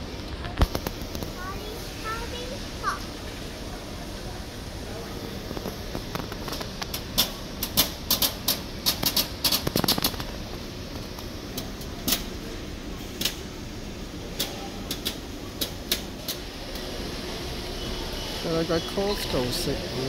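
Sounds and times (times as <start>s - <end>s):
steady background noise: 0.0s - 20.0s
sharp irregular clicks and taps: 14.4s - 16.4s.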